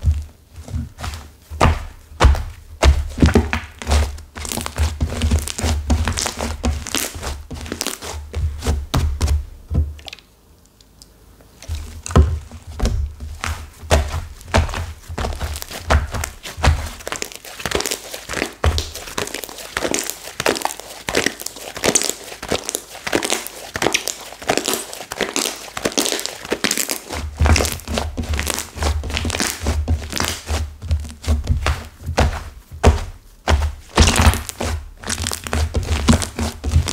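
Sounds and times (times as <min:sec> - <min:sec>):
low thuds against a surface: 0:11.7 - 0:14.4
stiff slime crackling when squeezed: 0:17.0 - 0:30.5.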